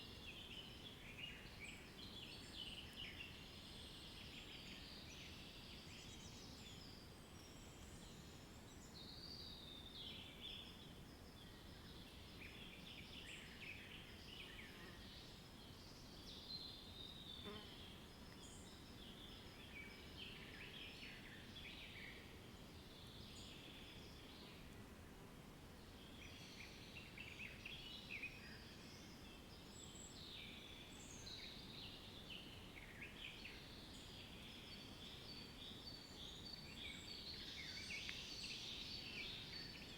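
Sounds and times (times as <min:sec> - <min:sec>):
low background noise: 0:00.0 - 0:39.9.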